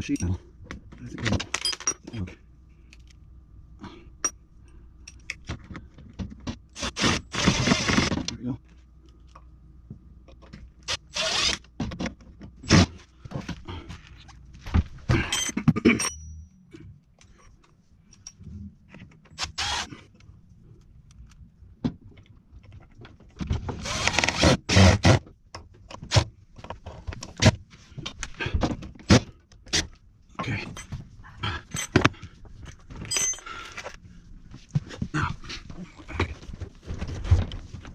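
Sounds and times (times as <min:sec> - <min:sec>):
cordless drill driving screws: 0:06.8 - 0:08.1, 0:10.8 - 0:11.6, 0:19.4 - 0:19.9, 0:23.8 - 0:25.2.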